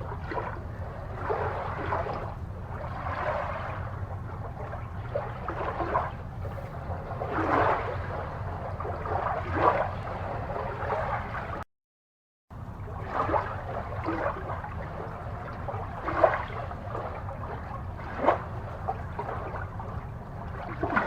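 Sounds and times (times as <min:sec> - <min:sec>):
aquarium water bubbling: 0:00.0 - 0:11.6, 0:12.5 - 0:21.0
low hum: 0:00.0 - 0:11.6.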